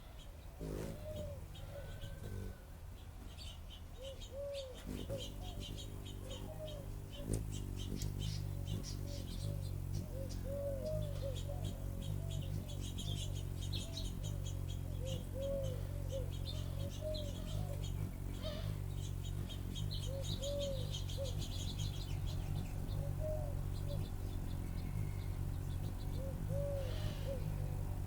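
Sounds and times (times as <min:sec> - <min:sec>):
small birds chirping: 0:00.0 - 0:28.0
steady low hum: 0:00.0 - 0:28.0
bird cooing: 0:00.1 - 0:02.7, 0:04.0 - 0:28.0.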